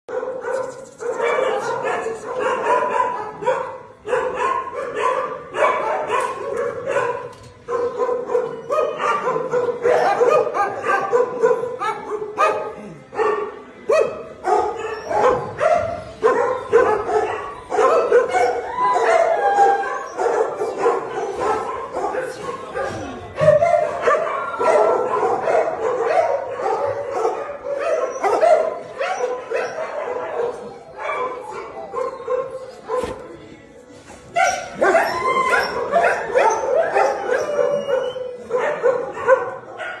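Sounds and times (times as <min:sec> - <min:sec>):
dogs barking: 0:00.1 - 0:33.3, 0:34.3 - 0:40.0
dog whining: 0:34.5 - 0:38.4.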